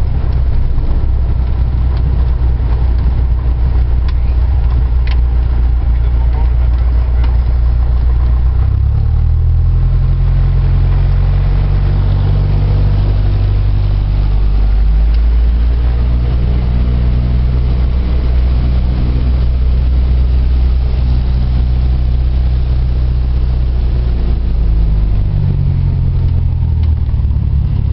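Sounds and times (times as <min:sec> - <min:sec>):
propeller plane engine droning: 0:00.0 - 0:27.9.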